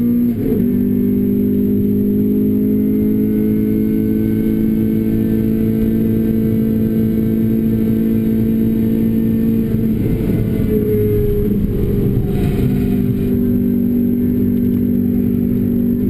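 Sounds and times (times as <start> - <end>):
car engine at high revs: 0.0 - 16.0.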